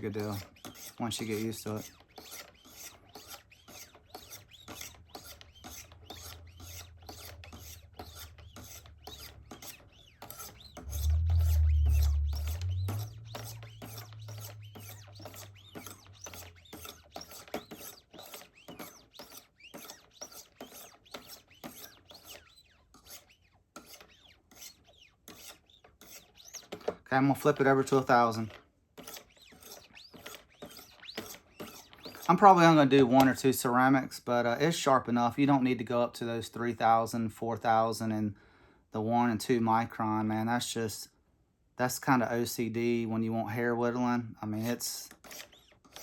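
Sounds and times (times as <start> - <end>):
stone rasping along knife blade: 0.0 - 33.4, 44.6 - 46.0
low hum: 6.4 - 17.0.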